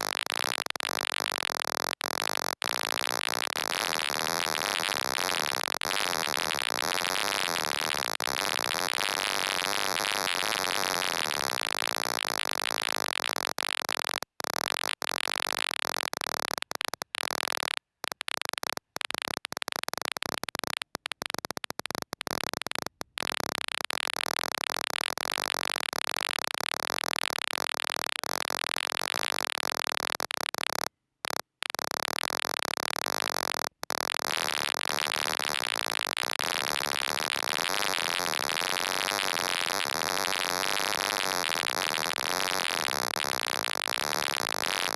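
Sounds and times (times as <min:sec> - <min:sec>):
loud static-like electronic hiss: 0:03.1 - 0:13.1, 0:34.3 - 0:44.9.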